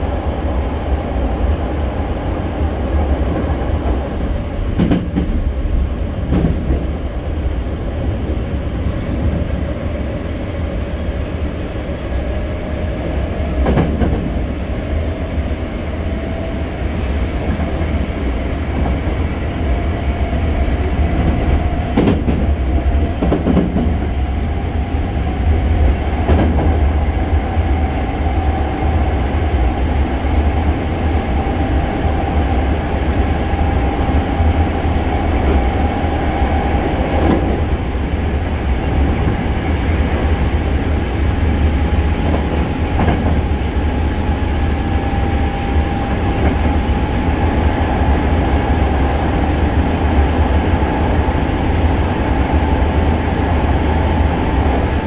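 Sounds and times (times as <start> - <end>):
train rumble: 0.0 - 55.0
train whine rising in pitch: 43.3 - 55.0.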